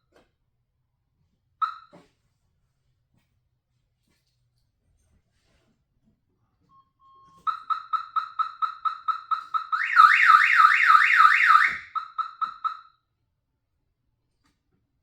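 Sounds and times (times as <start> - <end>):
electronic warning beeps: 7.2 - 12.8
warbling alarm tone: 7.5 - 12.8.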